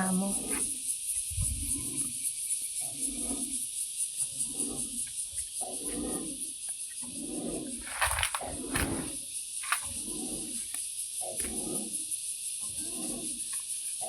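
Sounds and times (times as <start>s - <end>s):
soft low rumbles: 0.0s - 2.2s
insects trilling: 0.0s - 14.0s.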